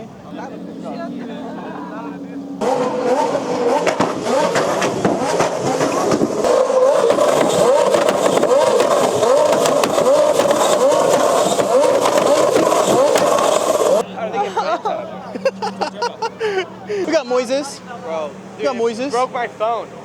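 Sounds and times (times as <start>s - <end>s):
car engine revving: 0.0s - 14.2s
exhaust crackles and pops: 2.6s - 14.0s.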